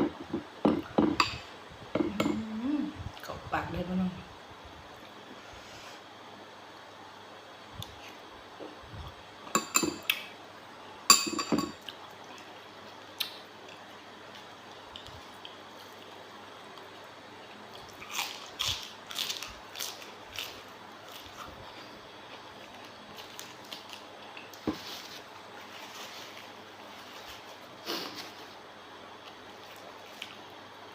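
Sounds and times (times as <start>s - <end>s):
dishes clinking: 9.5s - 10.1s, 11.1s - 11.8s.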